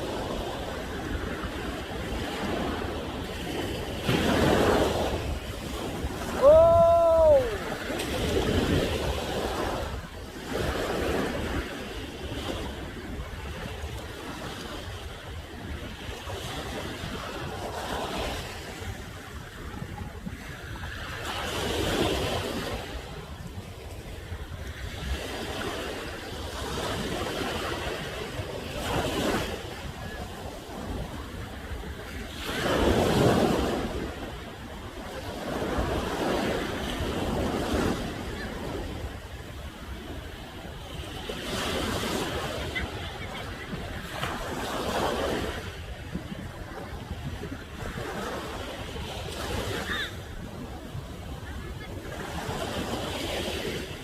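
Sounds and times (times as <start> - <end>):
ocean waves breaking on shore: 0.0 - 54.0
wind rumbling on microphone: 0.0 - 54.0.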